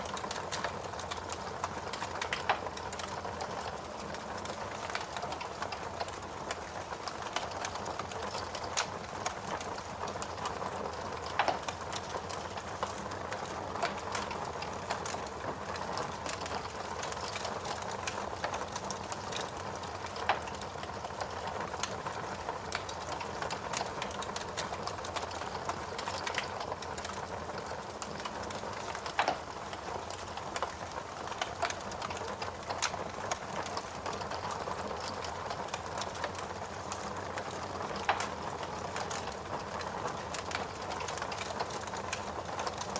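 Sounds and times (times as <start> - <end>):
fire pops: 0.0 - 3.8, 22.8 - 42.8
wood fire crackling: 0.0 - 42.9.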